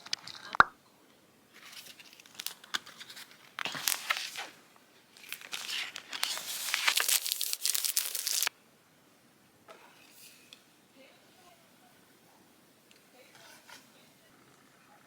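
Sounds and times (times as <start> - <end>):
packaging tearing and crinkling: 1.7 - 4.6, 5.2 - 8.5.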